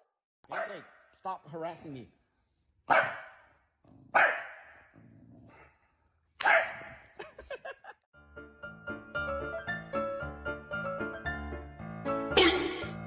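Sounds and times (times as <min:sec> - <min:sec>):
dog barking: 0:00.5 - 0:01.0, 0:02.9 - 0:04.9, 0:06.4 - 0:07.2.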